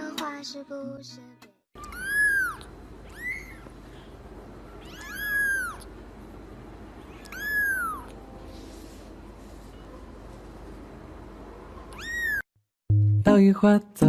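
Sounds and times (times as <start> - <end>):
cat meowing: 1.8 - 3.7, 4.7 - 5.9, 7.1 - 8.2, 11.9 - 12.4.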